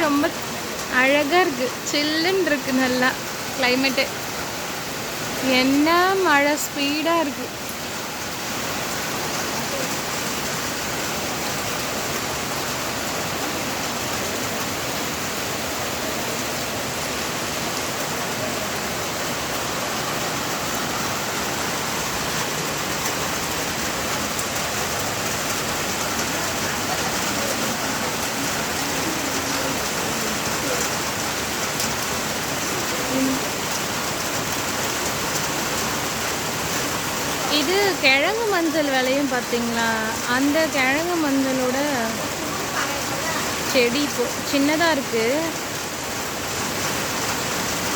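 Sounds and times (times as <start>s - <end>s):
heavy rain falling: 0.0s - 47.9s.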